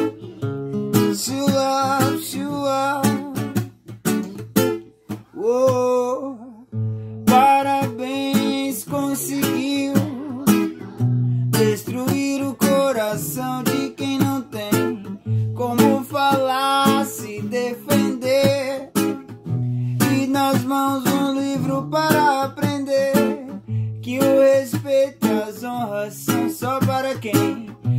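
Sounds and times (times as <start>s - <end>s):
person singing: 0.0s - 4.4s, 5.2s - 27.9s
acoustic guitar strumming: 0.0s - 27.9s.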